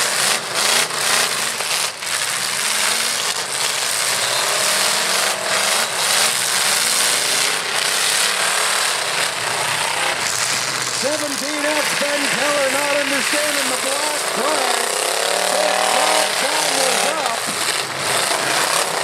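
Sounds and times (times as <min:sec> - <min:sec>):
truck engines revving: 0:00.0 - 0:19.0
steady noisy wash: 0:10.7 - 0:18.1.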